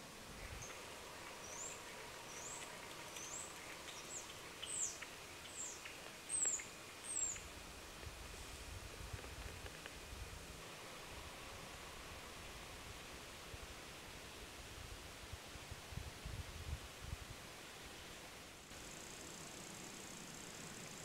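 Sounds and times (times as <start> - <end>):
faint background hiss: 0.0 - 21.0
small bird calling: 0.4 - 7.6.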